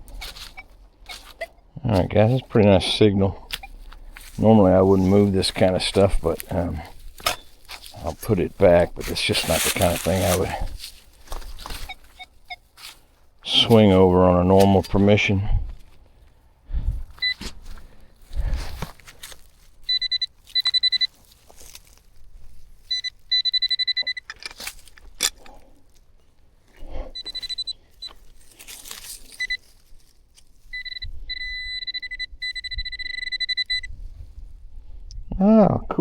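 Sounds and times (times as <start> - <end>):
metal detector beeps: 0.0 - 6.6, 11.5 - 12.9, 17.2 - 17.5, 19.8 - 21.2, 22.8 - 24.5, 27.0 - 28.2, 29.2 - 29.8, 30.7 - 34.0
digging into soil thumps: 3.4 - 12.2.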